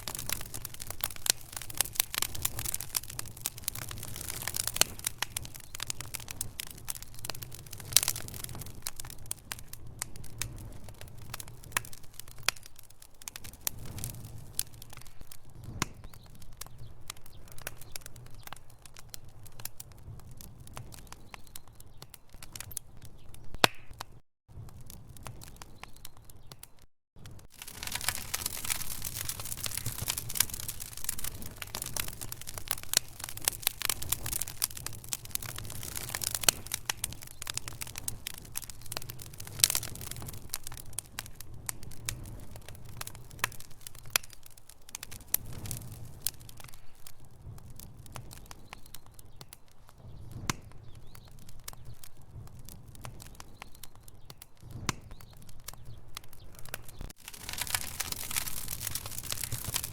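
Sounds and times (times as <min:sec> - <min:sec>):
logs crackling and popping: 0:00.0 - 0:59.9.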